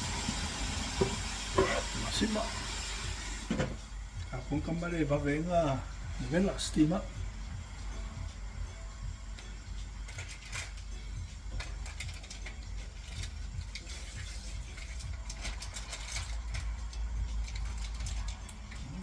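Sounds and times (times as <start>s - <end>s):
kitchen work clicks and knocks: 3.5s - 3.8s.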